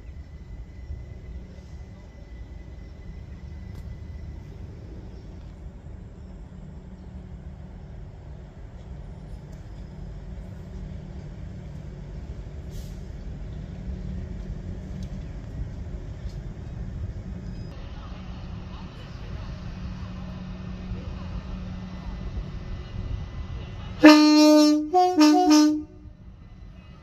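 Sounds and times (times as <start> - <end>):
electric train rumbling: 0.0 - 27.0
brief hiss: 12.6 - 13.2.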